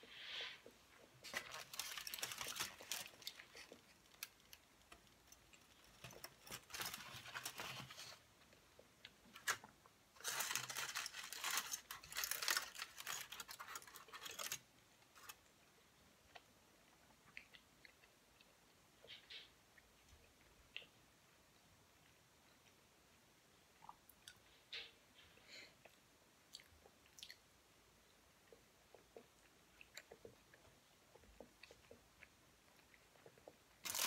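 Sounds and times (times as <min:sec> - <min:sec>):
person chewing: 0:25.8 - 0:27.4.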